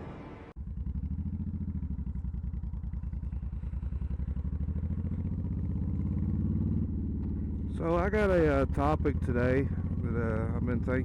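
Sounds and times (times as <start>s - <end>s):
motorcycle engine running: 0.6s - 11.0s.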